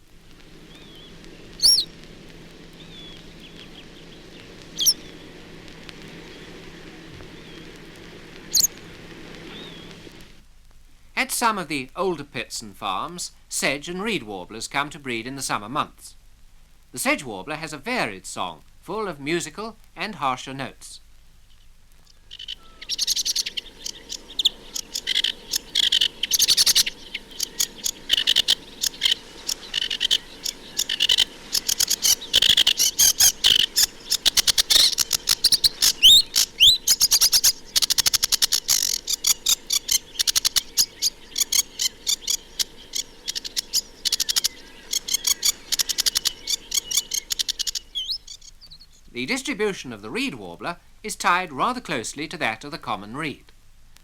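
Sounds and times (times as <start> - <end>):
warbler singing chattering song: 0.0 - 10.2, 21.4 - 50.0
rising bird whistles: 0.7 - 1.9, 4.7 - 5.2, 8.5 - 8.8, 22.6 - 48.8.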